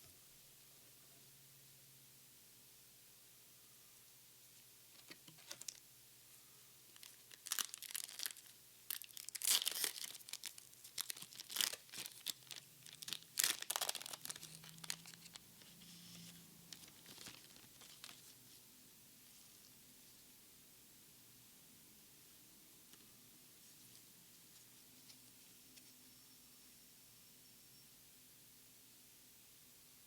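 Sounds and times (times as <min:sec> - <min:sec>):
foil wrapper tearing and crinkling: 0:07.0 - 0:15.6, 0:16.7 - 0:18.3.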